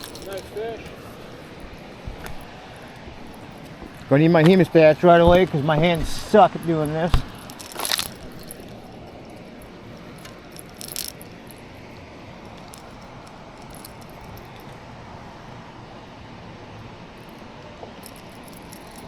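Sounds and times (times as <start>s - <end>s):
small metallic clicks and rattles: 0.0s - 0.8s, 7.3s - 11.7s, 12.4s - 14.8s, 18.0s - 19.0s.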